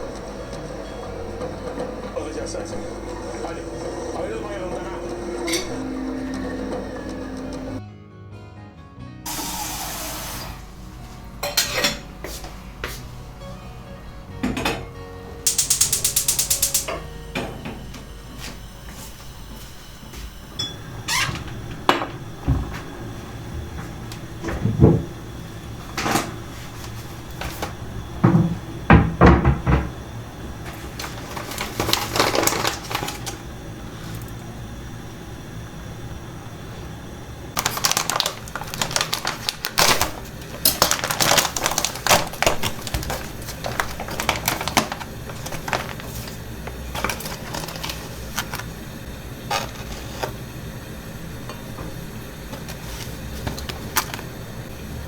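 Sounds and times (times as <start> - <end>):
dishes and utensils clinking: 4.7 - 7.8, 11.4 - 12.1.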